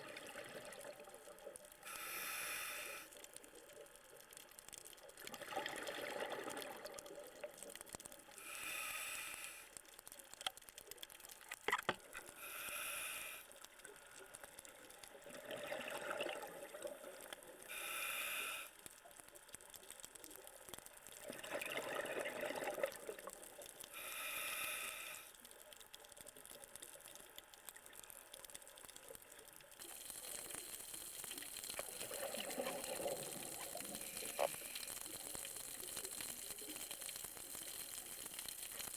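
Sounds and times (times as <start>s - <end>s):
regulator hiss: 1.9s - 3.1s, 8.4s - 9.7s, 12.4s - 13.5s, 17.7s - 18.8s, 24.0s - 25.3s
exhaled bubbles rushing: 5.4s - 7.0s, 15.3s - 16.8s, 21.3s - 23.2s, 29.9s - 34.8s.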